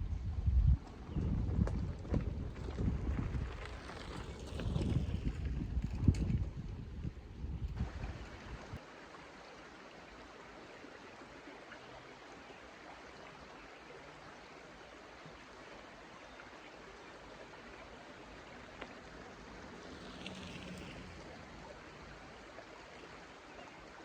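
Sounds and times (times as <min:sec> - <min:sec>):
stream water flowing: 0:07.8 - 0:24.0.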